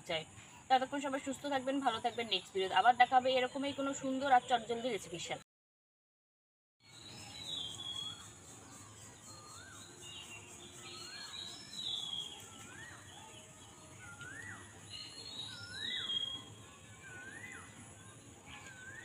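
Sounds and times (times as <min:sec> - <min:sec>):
faint outdoor background noise: 0:00.0 - 0:05.4, 0:06.8 - 0:19.0
high thin bird chirps: 0:06.8 - 0:13.1
bird calling with rising note: 0:06.9 - 0:19.0.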